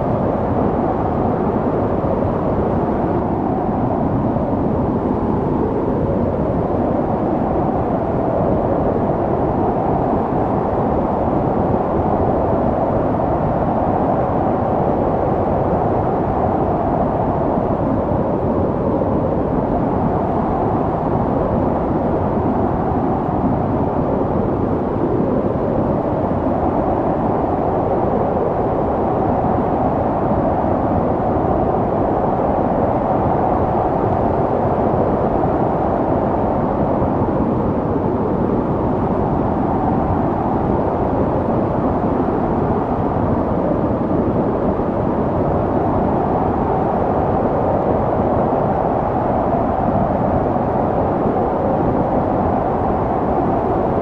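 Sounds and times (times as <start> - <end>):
snowstorm wind blowing: 0.0 - 54.0.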